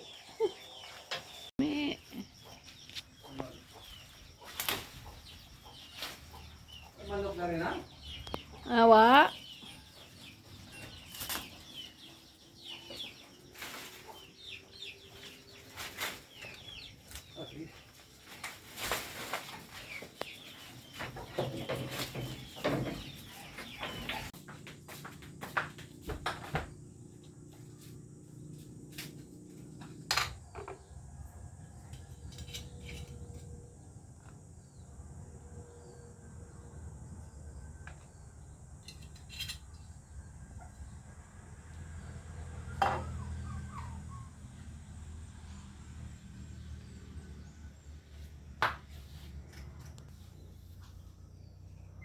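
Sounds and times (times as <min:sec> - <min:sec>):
chicks peeping: 0:00.0 - 0:18.4, 0:42.7 - 0:44.4
faint high insect-like hum: 0:24.5 - 0:40.8.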